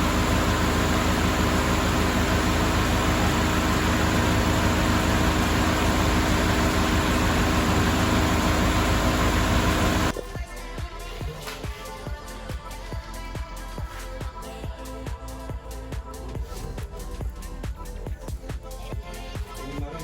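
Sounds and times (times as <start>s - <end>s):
car engine running: 0.0s - 10.1s
music: 10.1s - 20.0s.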